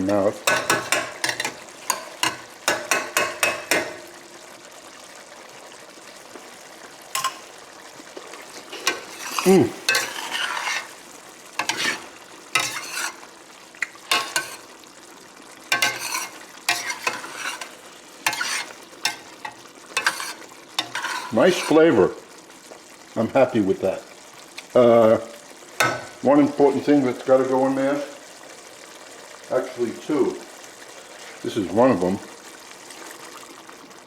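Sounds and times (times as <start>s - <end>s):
spoon stirring and scraping pot: 0.0s - 4.2s, 7.1s - 14.8s, 15.7s - 21.9s
stew simmering hiss: 0.0s - 34.0s.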